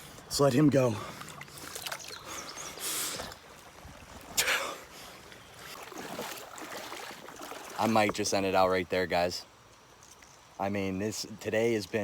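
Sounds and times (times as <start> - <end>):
water swish: 1.2 - 8.4.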